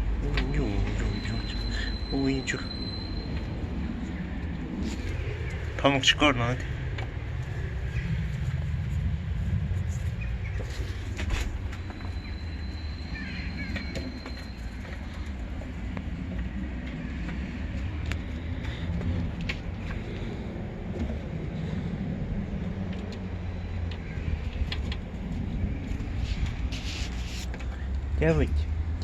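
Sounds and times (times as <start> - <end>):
low street rumble: 0.0 - 29.0
birds chirping: 0.2 - 6.8, 9.9 - 20.7.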